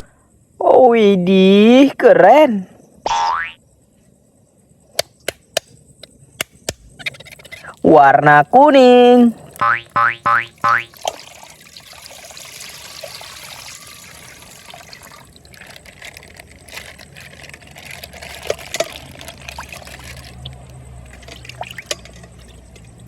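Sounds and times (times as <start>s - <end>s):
water trickling from plastic bag: 10.4s - 23.0s.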